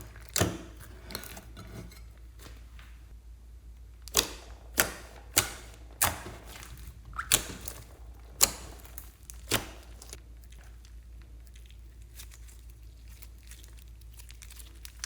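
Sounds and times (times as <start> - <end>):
slime popping: 4.1 - 15.0.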